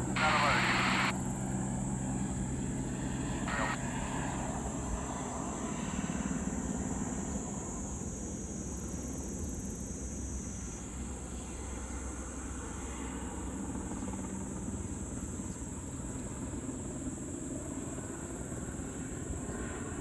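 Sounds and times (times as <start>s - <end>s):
burst of radio noise: 0.0s - 1.1s, 3.4s - 3.8s
faint high whine: 0.0s - 1.5s, 2.6s - 4.2s
helicopter engine and rotor: 0.0s - 9.0s, 11.0s - 20.0s.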